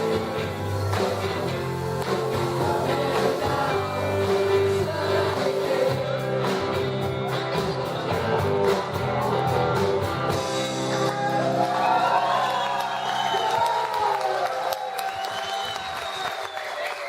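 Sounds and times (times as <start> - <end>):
rock band guitar: 0.0 - 13.3.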